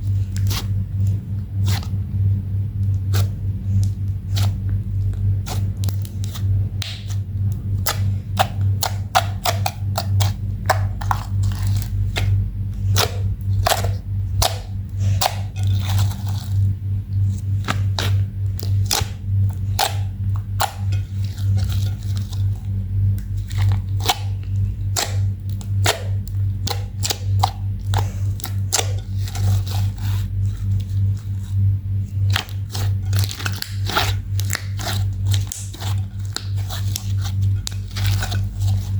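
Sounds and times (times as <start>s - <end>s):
constant low hum: 0.0s - 38.9s
slime kneaded wet clicks and pops: 5.5s - 7.2s.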